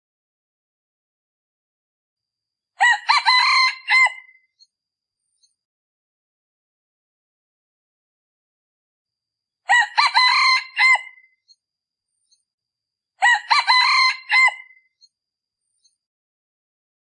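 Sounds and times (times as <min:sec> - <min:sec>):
rooster crowing: 0:02.8 - 0:04.4, 0:09.7 - 0:11.3, 0:13.2 - 0:14.8.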